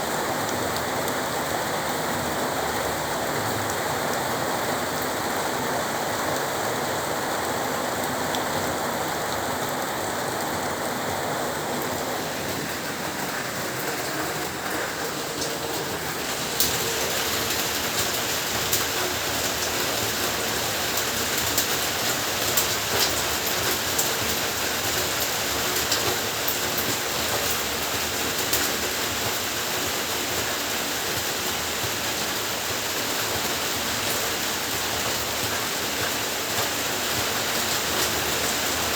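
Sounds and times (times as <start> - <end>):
heavy rain falling: 0.0 - 38.9
raindrops tapping a surface: 0.1 - 38.9.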